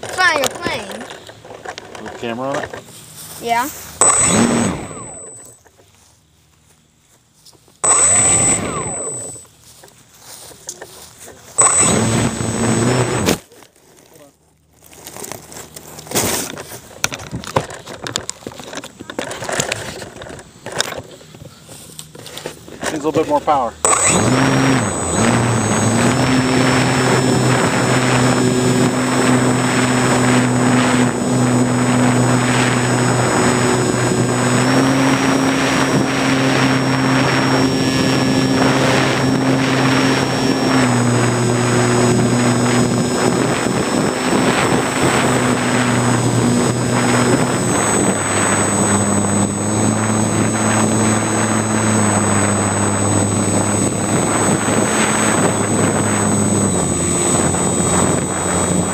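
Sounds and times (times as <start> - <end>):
model airplane motor and propeller: 0.0 - 2.8, 3.4 - 5.8, 7.8 - 14.4, 15.0 - 58.9
wind rush on microphone: 24.0 - 58.9.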